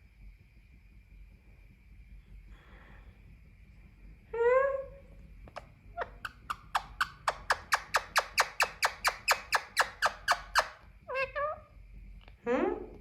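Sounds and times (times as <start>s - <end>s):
parakeet calling: 6.0s - 10.8s.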